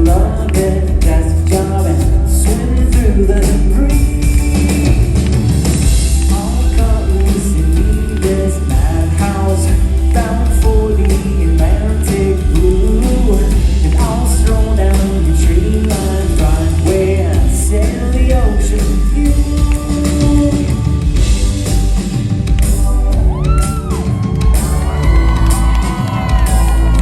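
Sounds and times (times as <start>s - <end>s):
person singing: 0.0s - 21.3s
booming bass and drums: 0.0s - 27.0s
live pop band playing: 0.0s - 27.0s.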